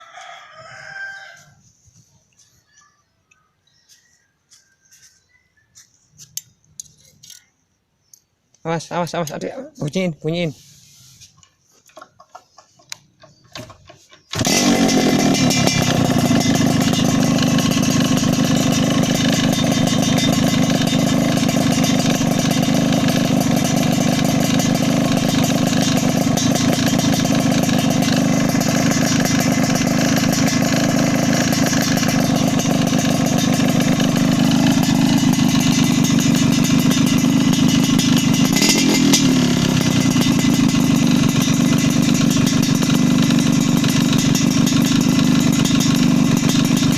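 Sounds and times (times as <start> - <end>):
motorcycle engine running loudly: 14.3 - 46.9.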